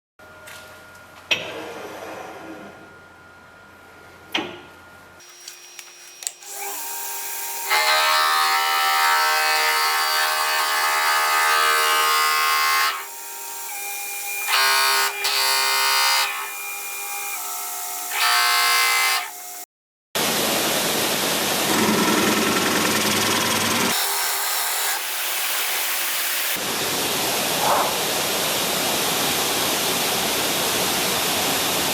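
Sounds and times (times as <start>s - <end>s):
rough wood-cutting noise: 5.2s - 13.1s
power tool whining: 12.1s - 19.6s.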